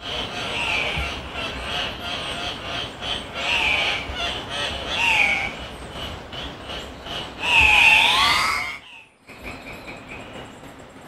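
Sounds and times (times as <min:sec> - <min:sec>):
bird calls: 0:00.0 - 0:11.0.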